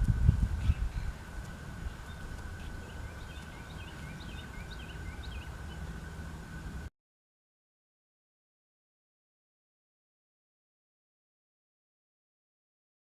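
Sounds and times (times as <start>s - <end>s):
wind buffeting microphone: 0.0s - 5.6s
small songbird chirping: 0.5s - 6.2s
faint steady high tone: 0.5s - 6.9s.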